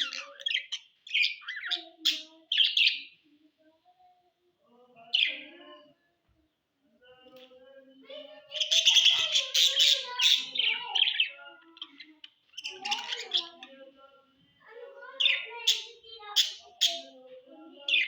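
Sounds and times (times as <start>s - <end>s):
budgerigars chirping and chattering: 0.0s - 3.2s, 8.4s - 13.9s, 15.0s - 18.0s.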